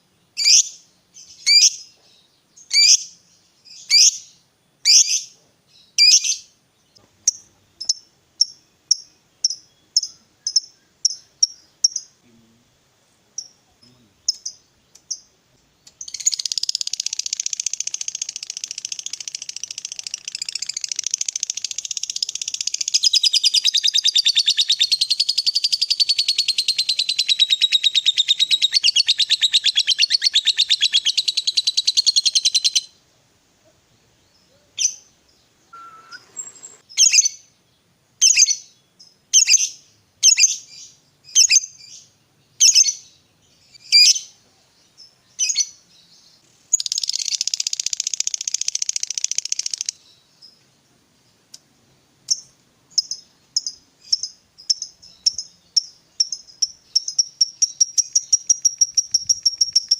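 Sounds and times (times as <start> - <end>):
lovebird chattering trill: 15.9 - 32.9, 46.7 - 50.1, 52.3 - 59.9
lovebird sharp single chirps: 35.7 - 37.4.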